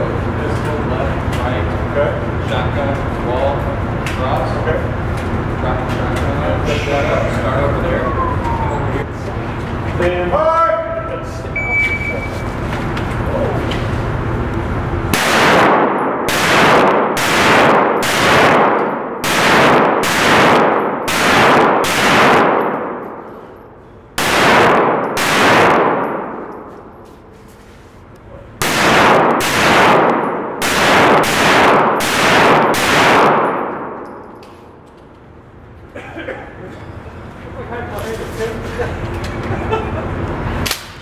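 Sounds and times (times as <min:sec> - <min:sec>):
gunshots: 0:15.1 - 0:23.2, 0:24.2 - 0:26.7, 0:28.6 - 0:34.0.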